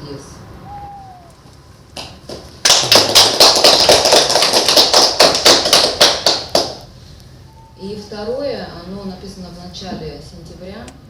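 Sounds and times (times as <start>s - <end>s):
audience applauding: 2.0s - 6.7s.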